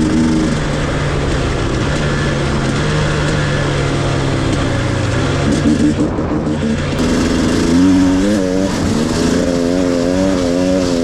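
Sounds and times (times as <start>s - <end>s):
dirt bike engine running: 0.0s - 11.0s
wind rush and riding noise: 0.0s - 11.0s.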